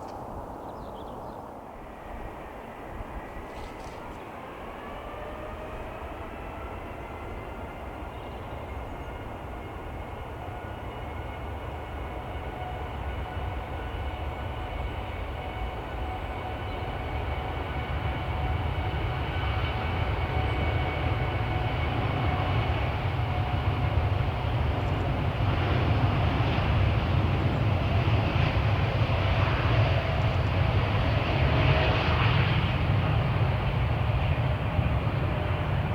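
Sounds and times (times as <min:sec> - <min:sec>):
jet engines whining: 0:12.8 - 0:35.9.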